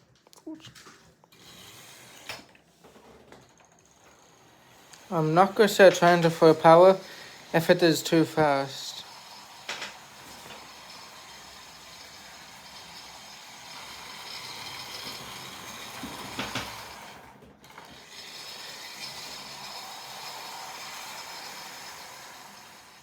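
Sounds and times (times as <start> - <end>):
model train motor whine: 1.3 - 2.6, 3.4 - 23.0
wheels rattling on track: 5.1 - 23.0.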